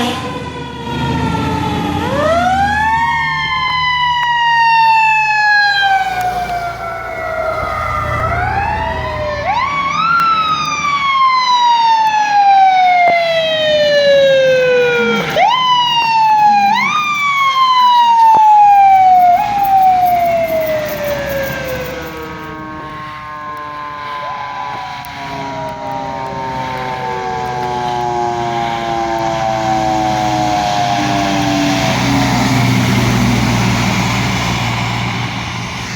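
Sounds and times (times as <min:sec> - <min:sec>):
fire truck siren: 0:00.0 - 0:35.9
low engine rumble: 0:02.0 - 0:11.4.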